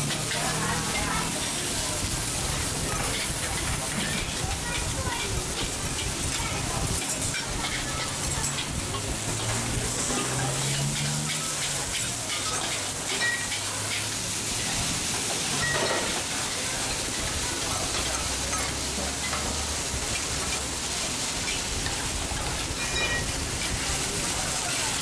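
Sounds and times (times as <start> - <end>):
noodles sizzling in a pan: 0.0 - 25.0
metal ladle and spatula stirring: 5.2 - 16.6.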